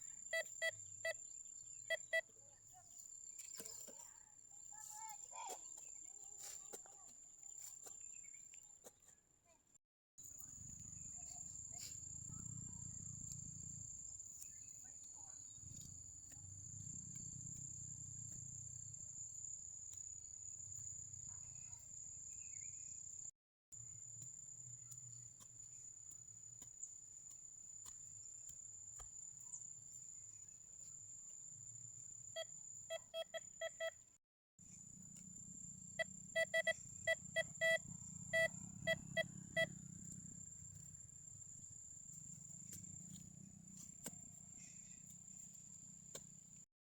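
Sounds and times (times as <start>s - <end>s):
metal detector beeps: 0.3s - 1.2s, 1.9s - 2.2s, 32.4s - 34.0s, 36.0s - 39.7s
high-pitched insect drone: 36.0s - 39.7s.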